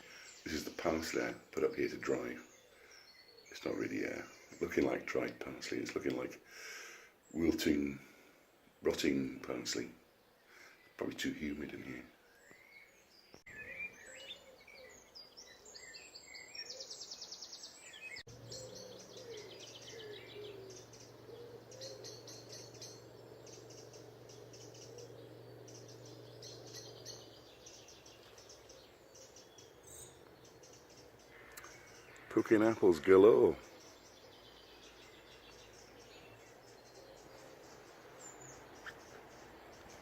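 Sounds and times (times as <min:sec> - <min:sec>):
songbirds singing and chirping: 0:00.0 - 0:40.0
steady low hum: 0:18.3 - 0:31.9.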